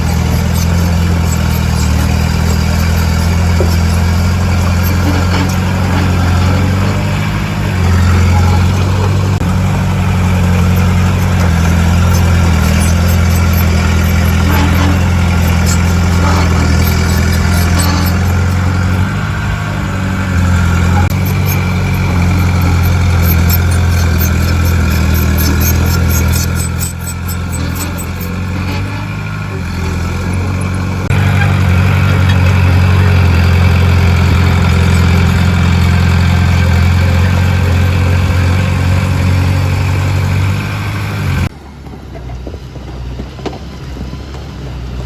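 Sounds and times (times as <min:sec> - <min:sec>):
faint rapid ticking: 0:00.0 - 0:07.0, 0:07.8 - 0:19.5, 0:20.4 - 0:29.0, 0:32.8 - 0:39.6
heavy diesel engine running: 0:00.0 - 0:45.0.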